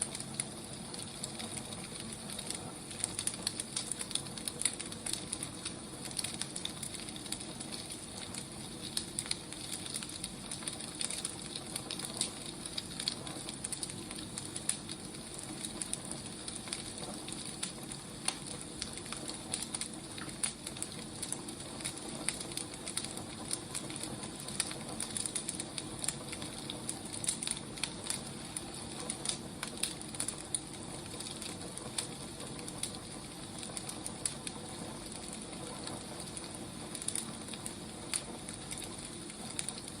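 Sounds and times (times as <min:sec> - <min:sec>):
wood fire crackling: 0:00.0 - 0:40.0.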